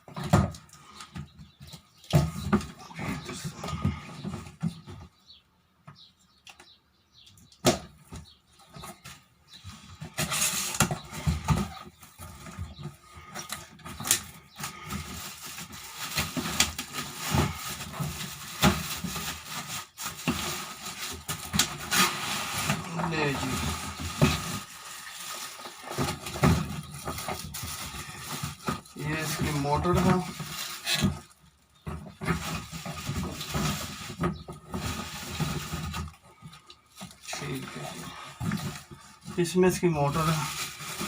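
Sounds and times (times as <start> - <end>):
packaging rustling: 9.9 - 41.0.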